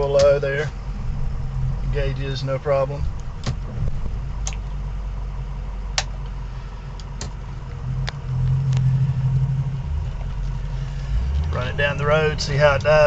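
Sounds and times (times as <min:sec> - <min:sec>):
diesel truck engine running: 0:00.0 - 0:13.0
sharp clicks: 0:04.4 - 0:04.7.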